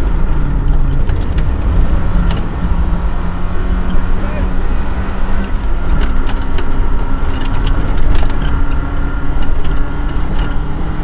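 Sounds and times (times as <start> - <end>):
sharp clicks and knocks: 0.0 - 2.6, 5.4 - 10.7
car engine rumbling under load: 0.0 - 11.0.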